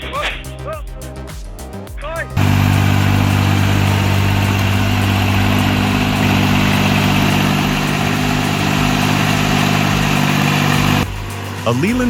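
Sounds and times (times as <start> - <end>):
diesel engine running: 2.4 - 12.0.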